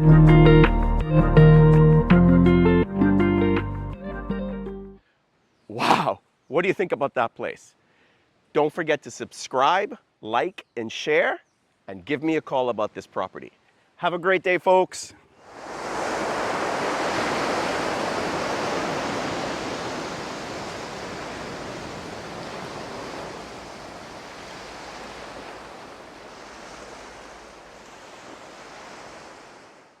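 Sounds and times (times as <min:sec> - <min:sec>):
ocean waves washing: 0:15.4 - 0:30.0.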